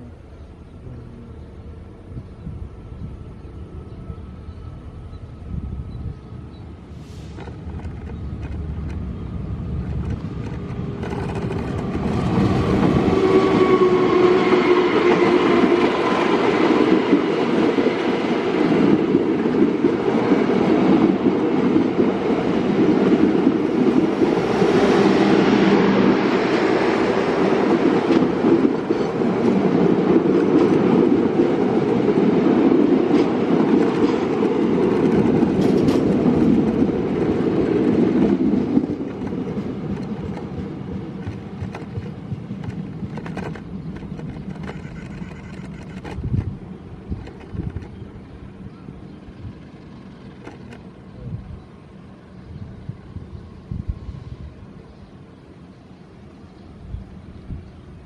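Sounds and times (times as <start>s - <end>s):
train rumbling past: 0.0s - 58.0s
wheels clattering on rails: 7.2s - 13.7s, 27.6s - 48.2s.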